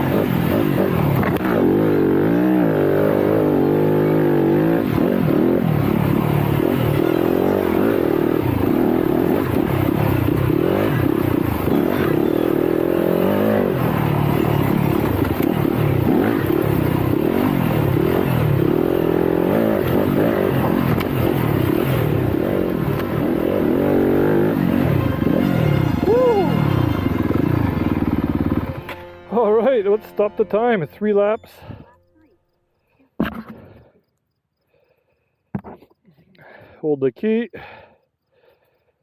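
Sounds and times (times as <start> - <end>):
dirt bike engine revving: 0.0 - 29.1.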